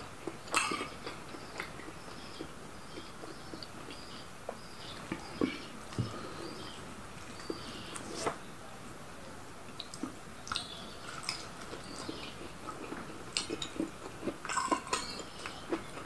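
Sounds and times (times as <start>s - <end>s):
person chewing: 0.0s - 4.1s, 9.8s - 16.0s
wet squishes of food: 0.0s - 8.4s, 9.7s - 16.0s.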